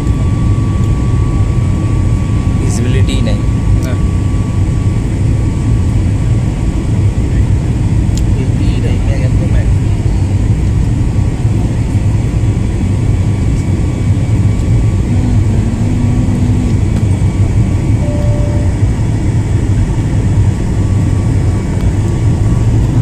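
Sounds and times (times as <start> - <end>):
jet engines rumbling: 0.0 - 23.0
faint brief tone: 18.0 - 18.8.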